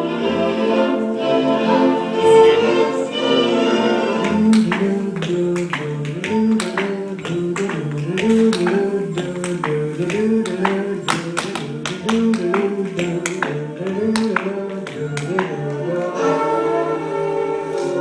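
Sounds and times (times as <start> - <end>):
instrumental music: 0.0 - 18.0
tap shoes on hard floor: 4.2 - 15.8.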